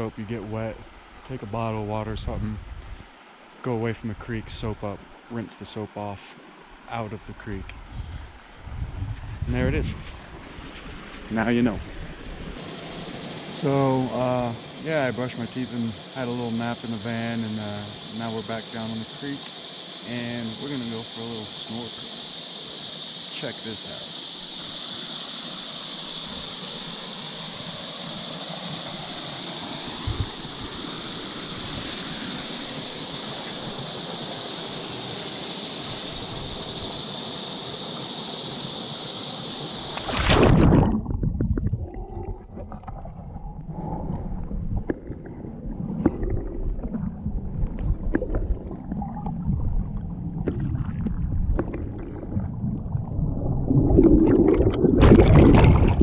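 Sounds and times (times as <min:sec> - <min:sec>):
high insect buzzing: 0:00.0 - 0:41.0
splash into water: 0:39.8 - 0:43.2, 0:53.6 - 0:56.0
muffled underwater gurgling: 0:40.0 - 0:56.0.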